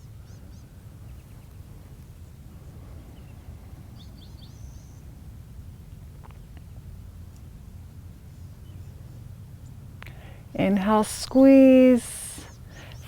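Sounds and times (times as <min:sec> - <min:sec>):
faint bird chirps: 0:00.0 - 0:05.2, 0:12.4 - 0:13.0.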